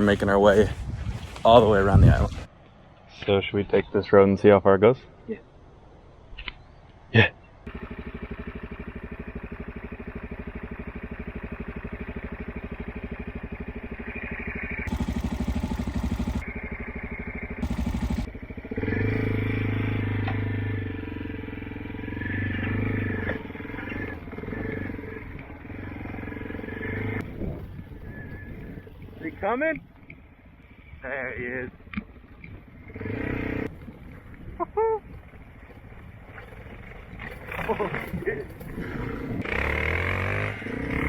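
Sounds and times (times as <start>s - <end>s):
motorcycle engine running: 7.7s - 30.9s, 31.7s - 41.0s.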